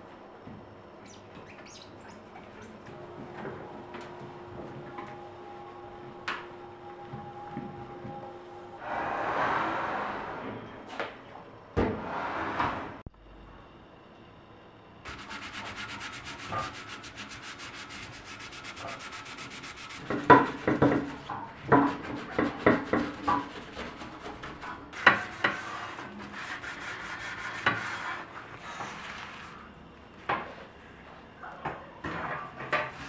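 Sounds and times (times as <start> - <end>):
scrubbing a surface: 15.1 - 29.6.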